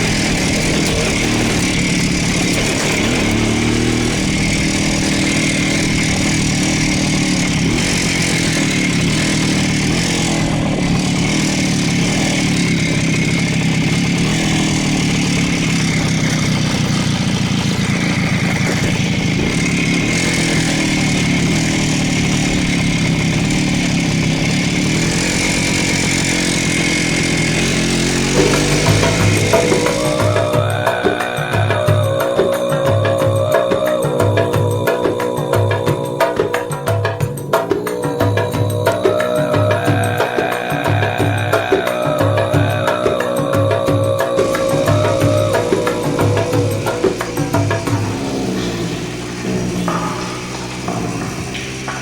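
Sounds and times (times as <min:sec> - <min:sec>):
music: 0:00.0 - 0:06.9, 0:28.2 - 0:52.0
motorcycle engine running: 0:00.0 - 0:52.0.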